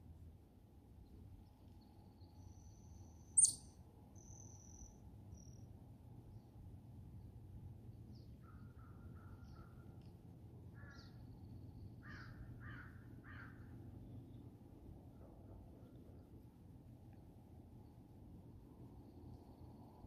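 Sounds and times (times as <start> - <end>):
faint distant bird calls: 1.6 - 5.7, 8.1 - 10.1, 10.7 - 16.4.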